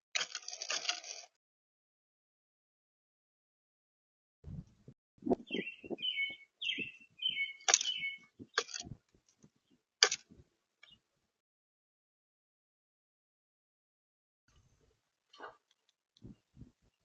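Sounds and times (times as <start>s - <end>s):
bird chirping: 5.2s - 8.9s.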